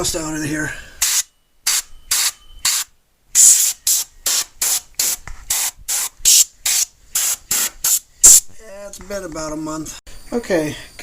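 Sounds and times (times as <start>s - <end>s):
air duster hissing blasts: 1.0s - 8.5s.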